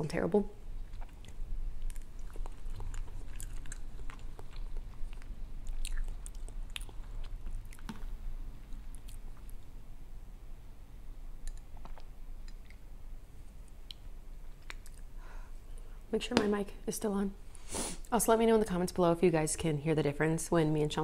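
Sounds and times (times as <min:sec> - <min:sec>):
person chewing noodles: 0:00.8 - 0:09.7
wet mouth clicks and smacks: 0:14.6 - 0:15.1.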